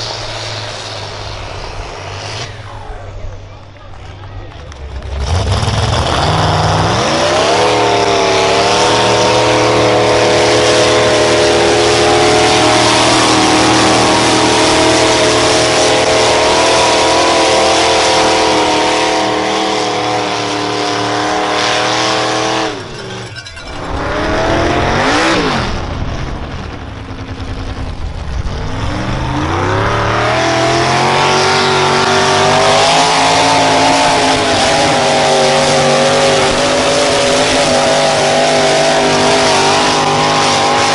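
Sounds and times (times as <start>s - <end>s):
vehicle engine revving: 0.0s - 40.9s.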